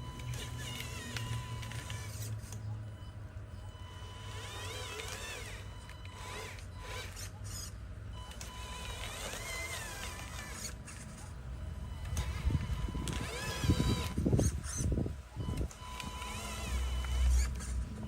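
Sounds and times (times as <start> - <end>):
small electric motor whining: 0.0 - 2.7, 3.7 - 18.0
steady low hum: 0.0 - 18.0.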